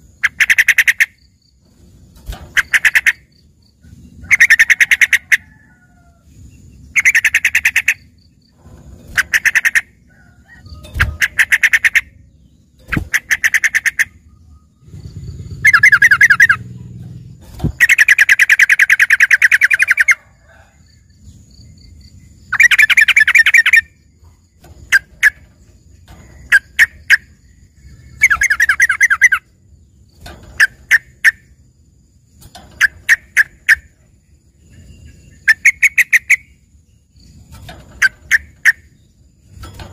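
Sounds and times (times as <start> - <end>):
bird singing trilled phrases: 6.6 - 8.4, 10.6 - 20.2, 21.1 - 31.6, 32.4 - 39.9.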